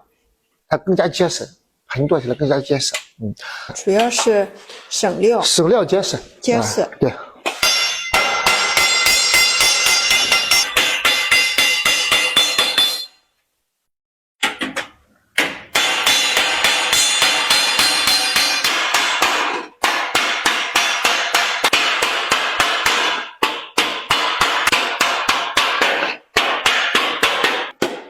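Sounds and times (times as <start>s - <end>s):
hammer blows on copper sheet: 7.6s - 13.1s.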